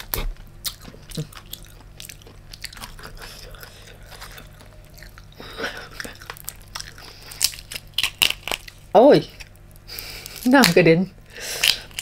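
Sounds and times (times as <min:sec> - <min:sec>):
chewing prawn meat: 0:00.0 - 0:10.6
small crunches and clicks: 0:06.0 - 0:08.8.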